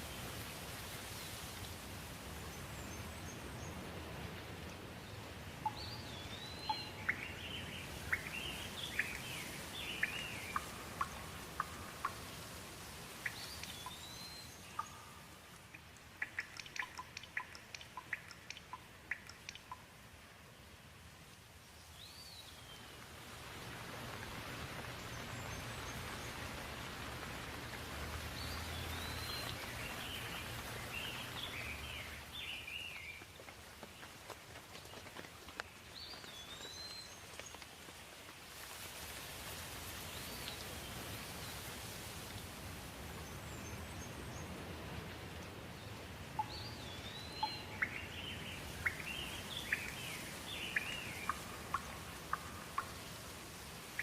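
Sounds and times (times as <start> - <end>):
rain hissing: 0.0 - 54.0
drips plinking: 14.8 - 19.8
raindrops tapping: 14.8 - 19.9, 23.0 - 38.4.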